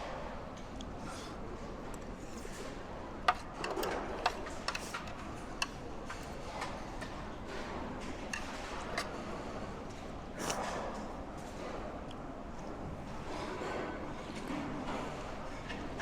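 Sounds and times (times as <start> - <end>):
utensils clicking against dishes: 3.3 - 9.6.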